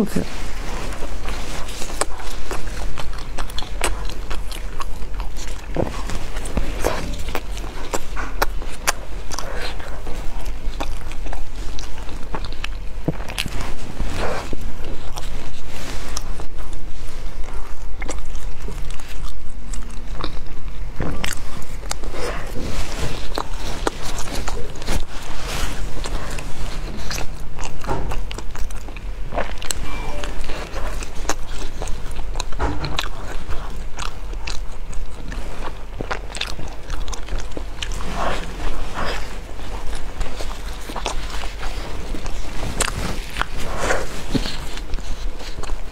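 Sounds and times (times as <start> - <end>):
chewing crusty bread: 0.0 - 45.9.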